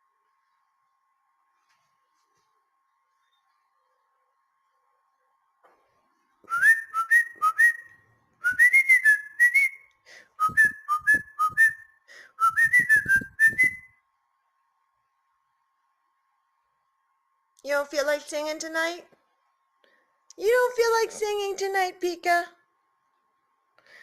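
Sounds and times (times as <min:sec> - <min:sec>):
upward-sliding whistled notes: 0:10.4 - 0:13.9.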